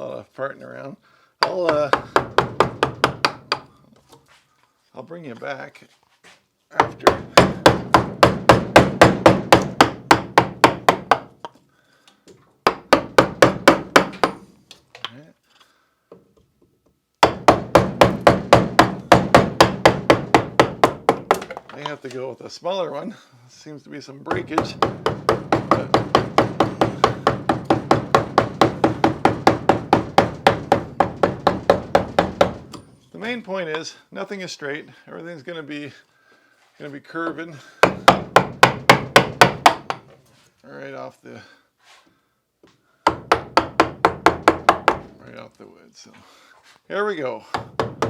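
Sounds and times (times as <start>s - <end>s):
mallet knocking gouge into wood: 6.8s - 11.3s, 17.2s - 21.9s, 24.3s - 32.8s.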